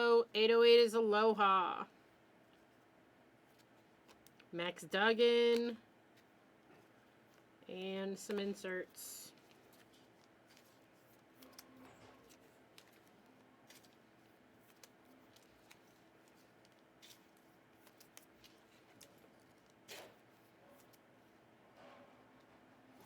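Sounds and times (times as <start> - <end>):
cards rustling: 2.4 - 4.5, 8.2 - 21.4.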